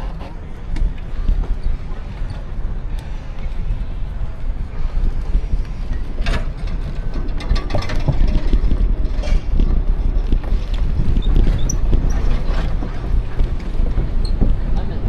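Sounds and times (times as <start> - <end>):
wind buffeting microphone: 0.0 - 15.0
light clicks and rattles: 5.1 - 15.0.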